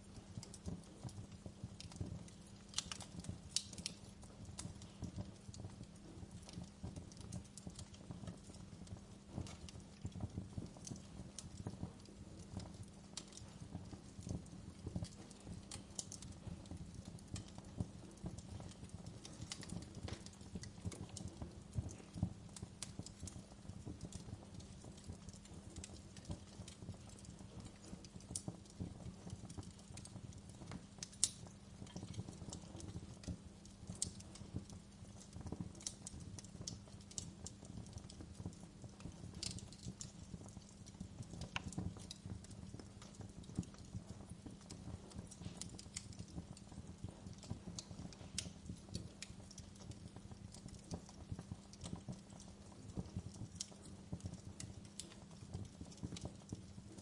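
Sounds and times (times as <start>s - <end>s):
low fire rumble: 0.0s - 57.0s
wood fire crackling: 0.0s - 57.0s.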